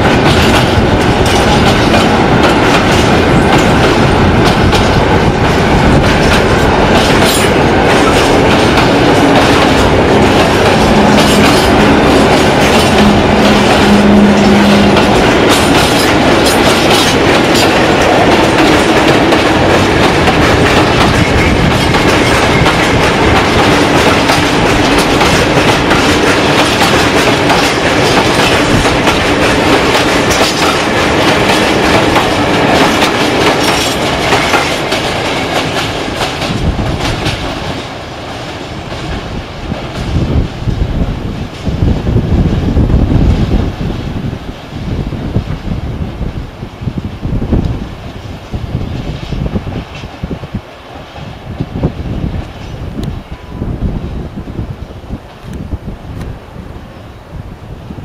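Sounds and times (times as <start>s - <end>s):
train wheels clattering over rails: 0.0s - 44.3s.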